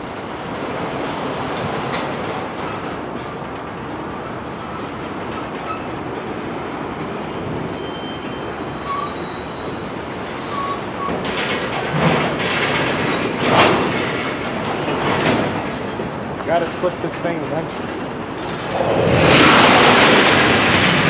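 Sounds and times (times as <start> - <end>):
steel wheels rumbling on rail: 0.0 - 21.0
wheel squeals: 7.7 - 11.2.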